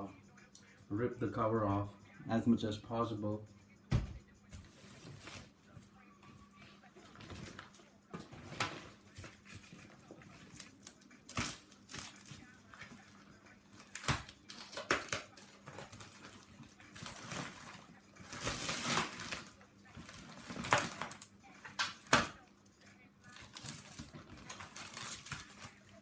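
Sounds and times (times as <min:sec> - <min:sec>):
packaging tearing and crinkling: 0:10.4 - 0:12.5, 0:13.8 - 0:22.3, 0:23.3 - 0:26.0.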